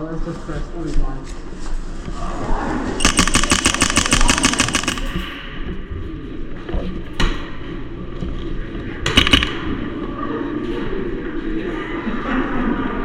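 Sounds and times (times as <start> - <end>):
airsoft gun firing: 3.0 - 5.4, 9.1 - 9.7.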